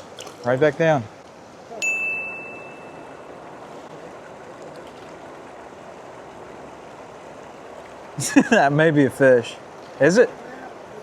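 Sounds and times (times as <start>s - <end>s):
water rushing: 0.0s - 11.0s
high ringing tone: 1.8s - 3.5s.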